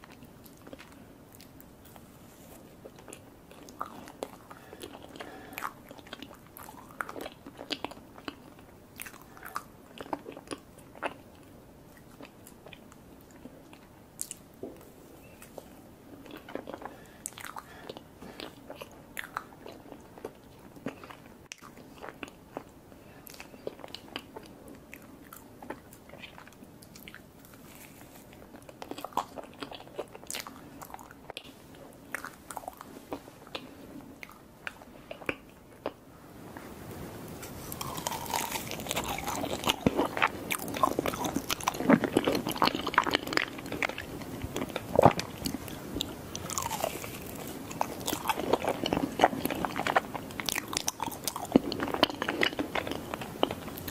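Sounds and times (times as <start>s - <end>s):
chewing and biting cake: 15.4s - 22.7s, 37.6s - 53.9s.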